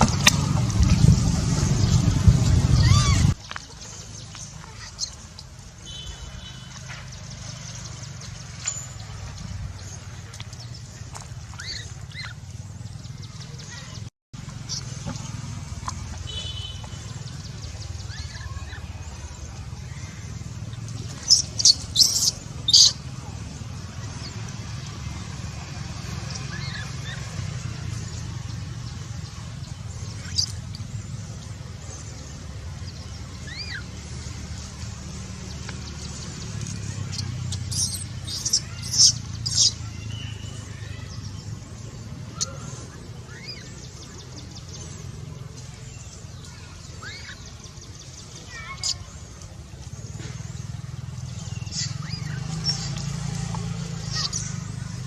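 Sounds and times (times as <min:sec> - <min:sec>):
low rumble: 0:00.0 - 0:03.4
outdoor background noise: 0:00.0 - 0:55.0
macaques squeaking: 0:02.6 - 0:03.4, 0:11.4 - 0:12.5, 0:20.8 - 0:23.2, 0:30.1 - 0:30.9, 0:33.4 - 0:34.0, 0:36.5 - 0:40.0, 0:51.5 - 0:53.1, 0:53.9 - 0:54.9
high animal chirps: 0:37.1 - 0:39.8.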